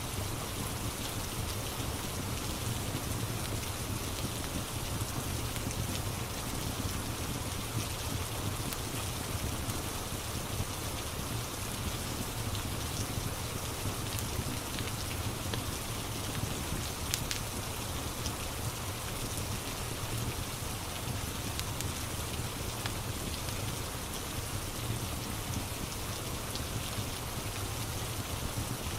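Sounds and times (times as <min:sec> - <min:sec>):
rain hiss: 0:00.0 - 0:28.9
fireplace crackling pops: 0:17.1 - 0:17.4.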